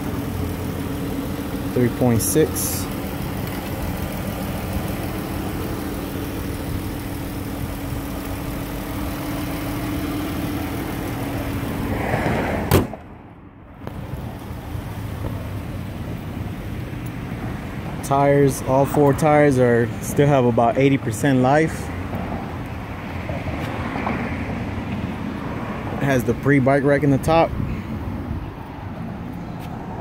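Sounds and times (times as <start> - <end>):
car engine idling: 0.0 - 23.3
car hood slammed shut: 12.6 - 13.1.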